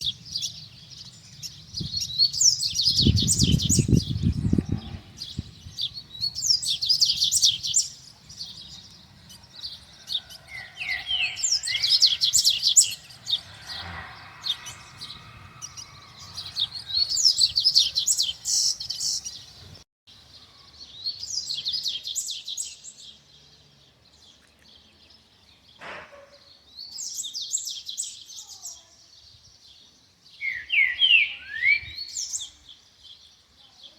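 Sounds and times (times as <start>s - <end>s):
bird twittering song: 0.0s - 25.8s, 26.4s - 33.9s
low rumble: 13.0s - 17.2s.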